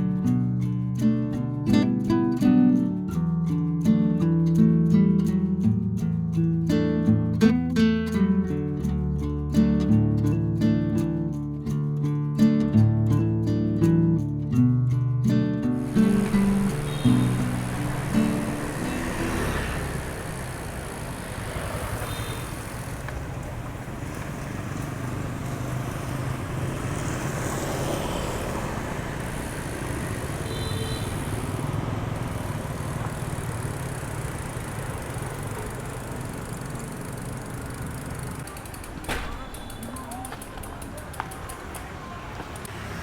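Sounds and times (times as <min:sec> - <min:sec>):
cars passing: 0:15.7 - 0:43.0
motorbikes passing: 0:15.7 - 0:43.0.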